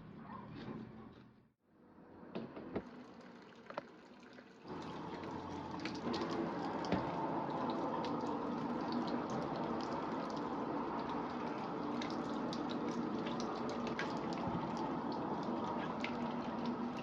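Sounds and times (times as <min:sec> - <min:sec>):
tap water running into sink: 0:02.4 - 0:17.0
clinks in water stream: 0:03.4 - 0:17.0.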